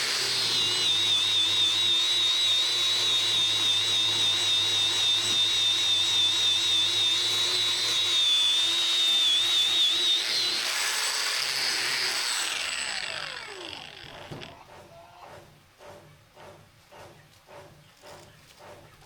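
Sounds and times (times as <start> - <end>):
power tool motor whining: 0.0 - 14.6.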